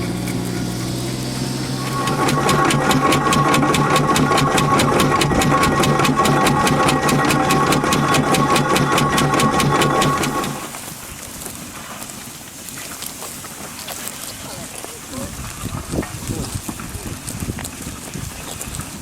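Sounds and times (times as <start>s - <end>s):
steam traction engine working: 0.0s - 11.2s.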